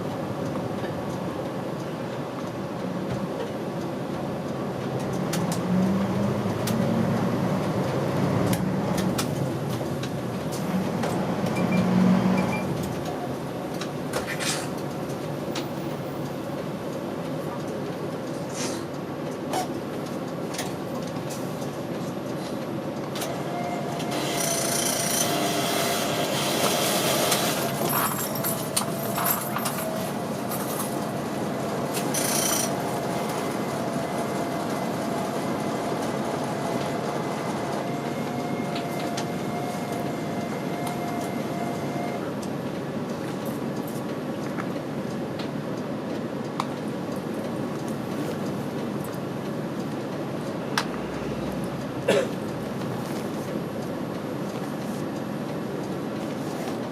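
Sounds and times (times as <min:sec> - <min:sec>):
bus engine and road rumble: 0:00.0 - 0:56.9.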